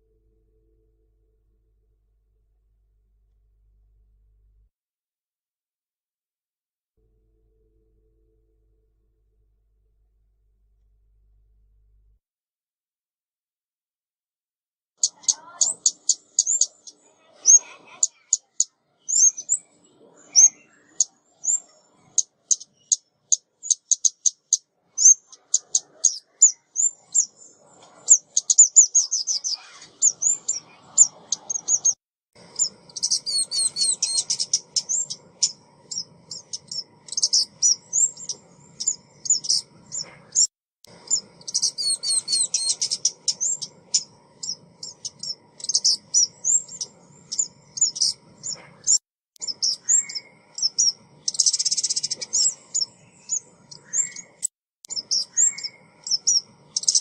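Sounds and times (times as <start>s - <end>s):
songbird chirping and twittering: 15.0s - 57.0s.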